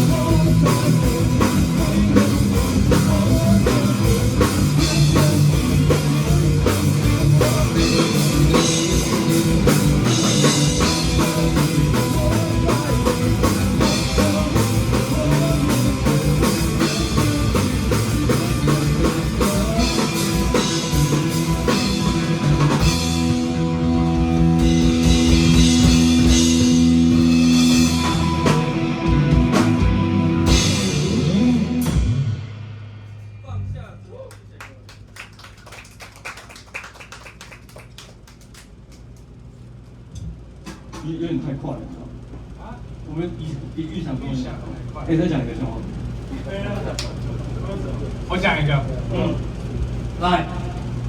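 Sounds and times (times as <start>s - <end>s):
electric guitar chords: 0.0s - 33.0s
drum kit: 0.0s - 33.4s.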